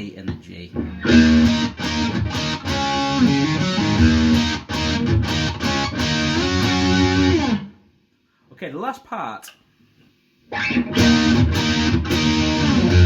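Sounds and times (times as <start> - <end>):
electric guitar rock riff: 0.8 - 7.8, 10.5 - 13.0.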